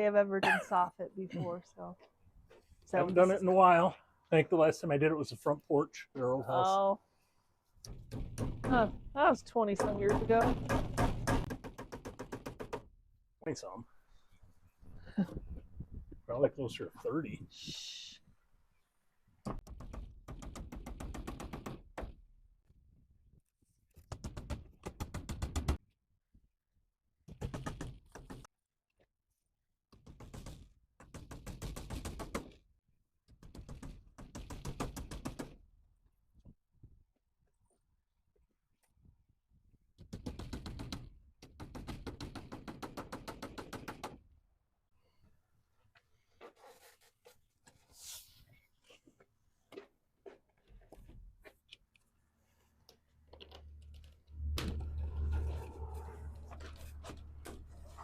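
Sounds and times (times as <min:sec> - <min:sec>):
rapid hammer knocking: 0:07.9 - 0:09.0, 0:09.8 - 0:12.9.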